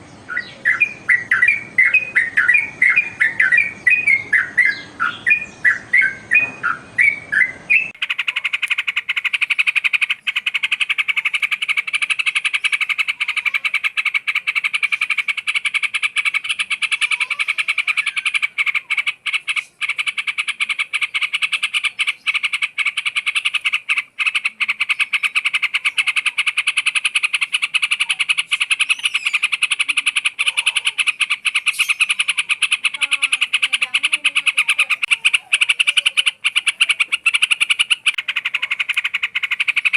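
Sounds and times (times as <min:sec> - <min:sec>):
bird singing whistled phrases: 0:00.1 - 0:08.0, 0:16.4 - 0:18.4, 0:27.9 - 0:38.0.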